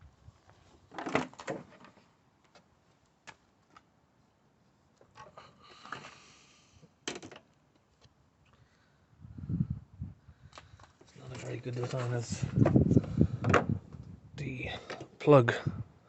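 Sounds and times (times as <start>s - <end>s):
tools and plastic parts clattering: 0.9s - 2.1s, 7.1s - 7.5s
scraping rustle: 11.0s - 13.2s.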